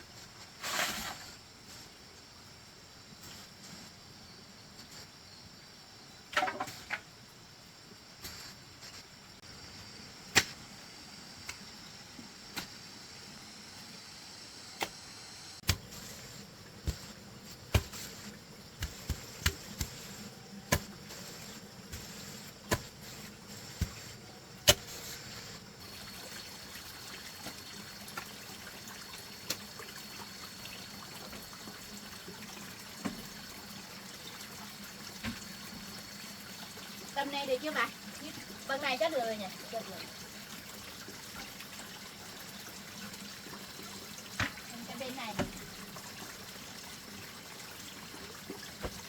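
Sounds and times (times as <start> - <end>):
trickling water hiss: 0.0 - 49.0
spade chopping into earth: 10.3 - 10.6, 15.6 - 21.2, 21.9 - 25.2.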